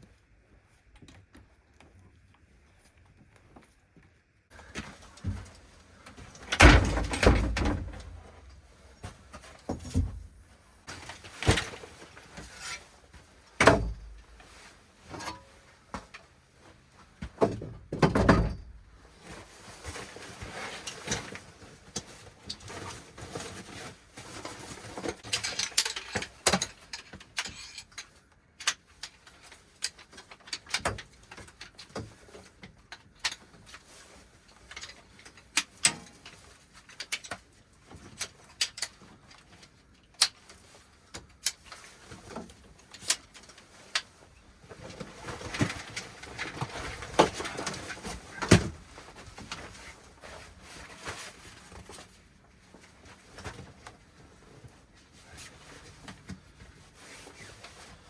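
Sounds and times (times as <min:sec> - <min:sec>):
clicks and rustling: 0:19.9 - 0:54.8.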